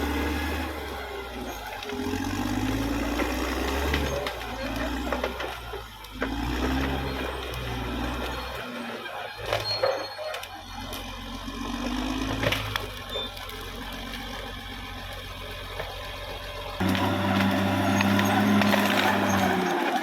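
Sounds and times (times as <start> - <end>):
bulldozer diesel engine running: 0.0 - 20.0
wood splintering and cracking: 0.0 - 20.0.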